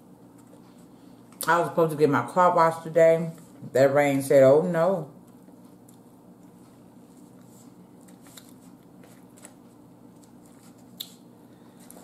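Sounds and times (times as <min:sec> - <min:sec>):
steady low hum: 0:00.0 - 0:12.0
faint chewing: 0:05.2 - 0:12.0.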